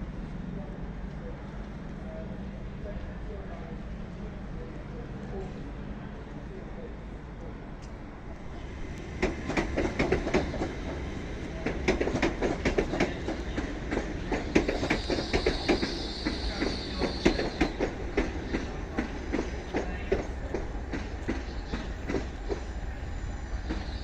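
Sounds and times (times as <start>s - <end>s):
train wheels clicking over rail joints: 8.8s - 22.7s
high wheel squeal: 14.8s - 17.8s.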